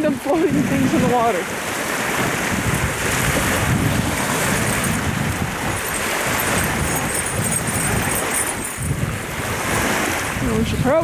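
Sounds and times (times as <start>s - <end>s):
waves washing onto shore: 0.0s - 11.0s
wind buffeting microphone: 0.0s - 11.0s.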